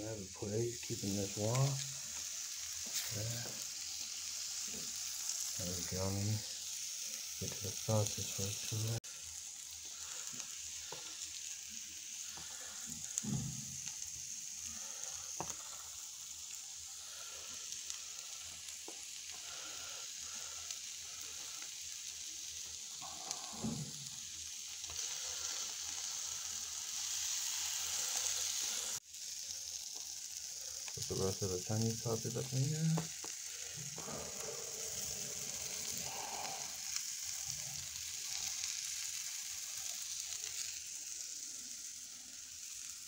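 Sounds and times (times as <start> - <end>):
sausage sizzling on hot metal: 0.0 - 43.0.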